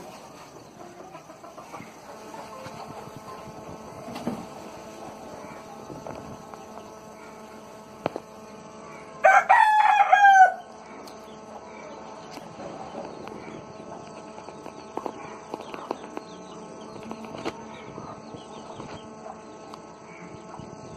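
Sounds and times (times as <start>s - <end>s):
faint farmyard background: 0.0s - 20.9s
rooster crowing: 9.2s - 10.8s.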